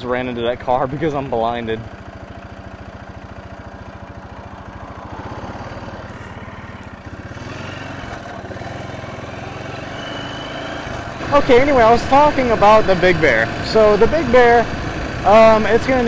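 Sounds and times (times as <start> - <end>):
four-wheeler engine running: 0.0 - 16.0.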